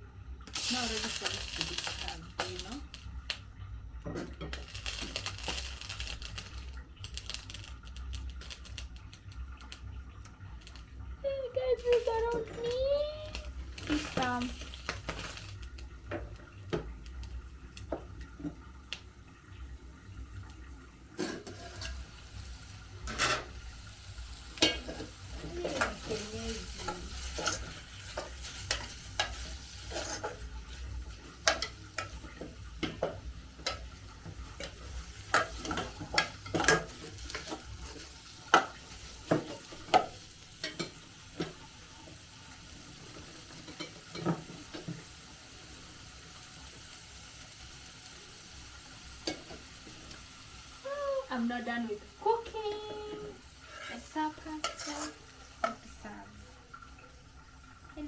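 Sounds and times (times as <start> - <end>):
spoon scraping metal pot: 21.2 - 22.1, 23.0 - 23.7, 24.6 - 40.9, 53.6 - 55.9.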